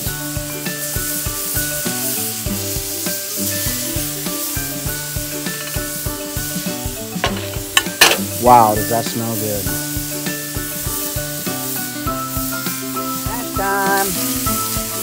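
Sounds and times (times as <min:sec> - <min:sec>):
background music with a beat: 0:00.0 - 0:15.0
meat sizzling on a griddle: 0:00.0 - 0:15.0
sharp knocks: 0:07.2 - 0:08.3.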